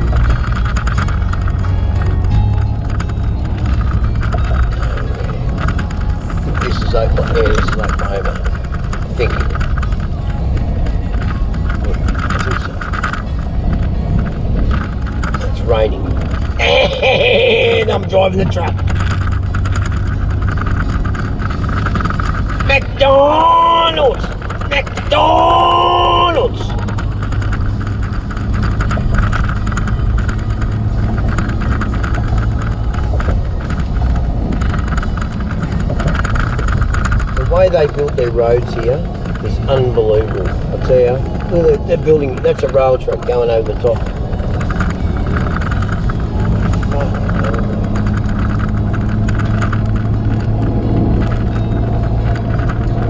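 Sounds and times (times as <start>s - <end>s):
rain hitting windshield: 0.0s - 53.0s
truck engine and road rumble: 0.0s - 53.0s.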